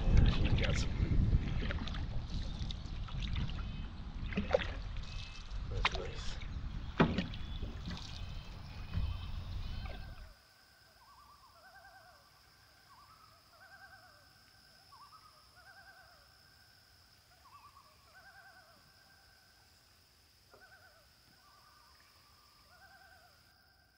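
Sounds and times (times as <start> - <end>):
faint quavering bird calls: 5.0 - 19.6, 20.5 - 23.5.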